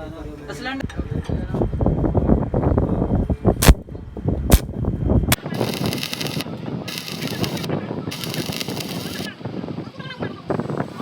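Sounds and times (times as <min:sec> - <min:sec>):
metal scraping strokes: 0:05.3 - 0:09.3.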